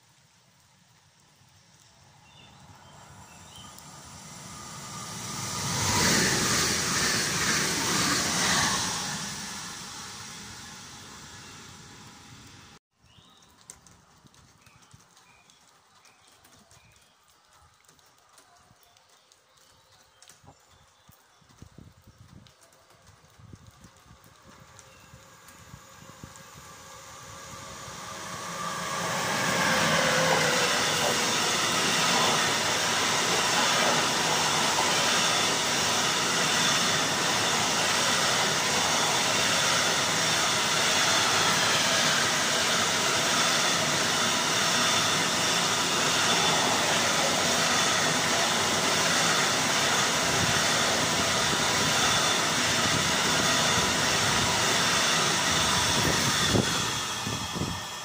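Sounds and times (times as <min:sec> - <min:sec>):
freight wagons rushing over rails: 0:24.0 - 0:58.0.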